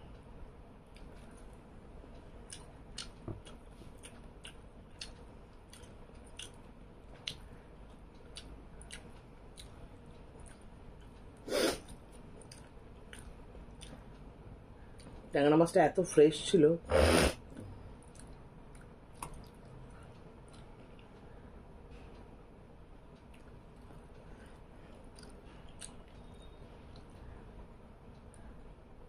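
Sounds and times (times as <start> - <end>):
person chewing fish bones: 2.5 - 9.7, 11.8 - 14.0, 18.0 - 20.7, 25.0 - 26.2.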